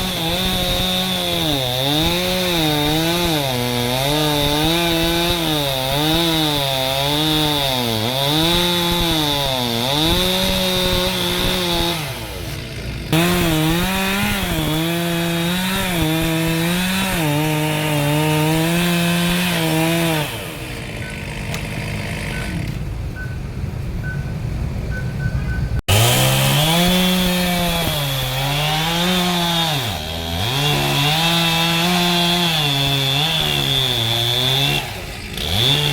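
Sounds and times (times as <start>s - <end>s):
chainsaw cutting wood: 0.0s - 22.8s, 25.9s - 35.9s.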